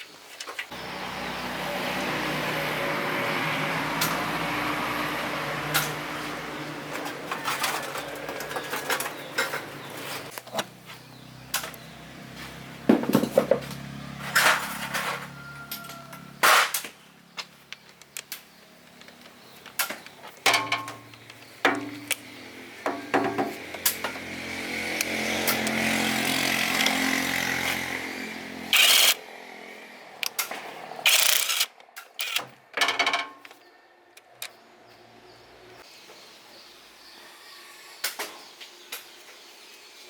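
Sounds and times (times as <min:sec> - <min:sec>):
metal tools clinking and knocking: 0:20.4 - 0:22.2, 0:31.1 - 0:33.6.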